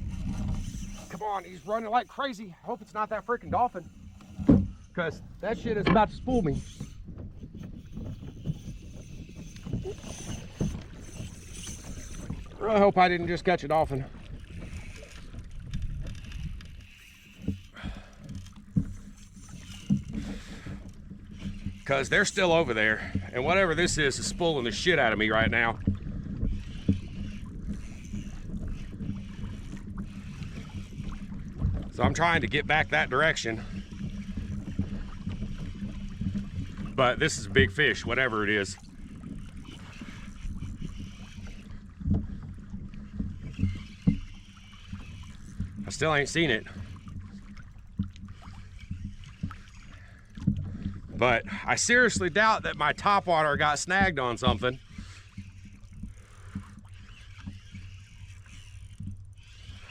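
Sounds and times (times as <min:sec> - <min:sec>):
wind rumble on microphone: 0:00.0 - 0:01.5
kayak on water: 0:00.0 - 0:59.9.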